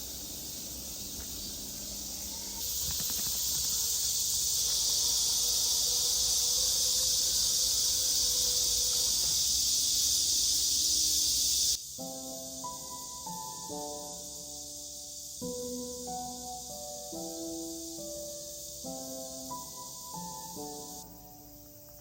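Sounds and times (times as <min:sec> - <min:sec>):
insects droning: 0:00.0 - 0:22.0
music: 0:11.2 - 0:22.0.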